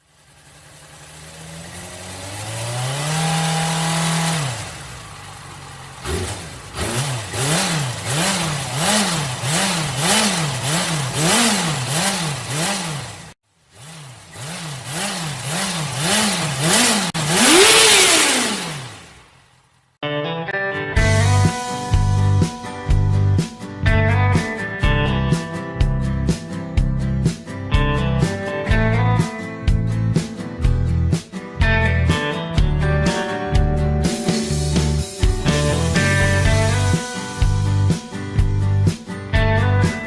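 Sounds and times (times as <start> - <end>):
motorcycle engine revving: 0.0 - 19.8, 34.0 - 40.0
motorcycle throttle blips: 0.2 - 19.4.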